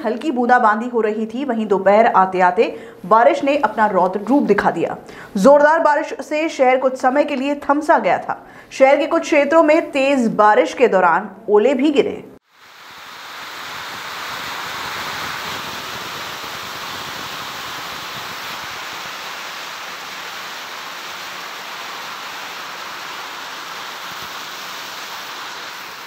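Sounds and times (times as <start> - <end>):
heavy rain and hail: 12.5 - 26.0.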